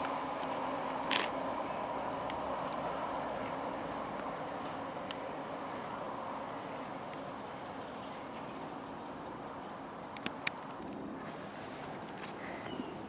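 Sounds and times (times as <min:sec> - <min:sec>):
faint diesel train rumble: 0:00.0 - 0:10.2.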